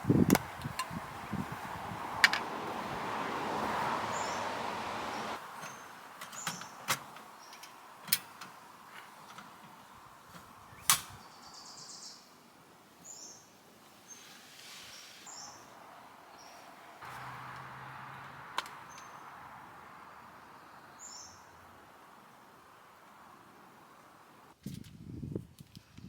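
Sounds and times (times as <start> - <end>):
sharp clicks and knocks: 5.5 - 11.2.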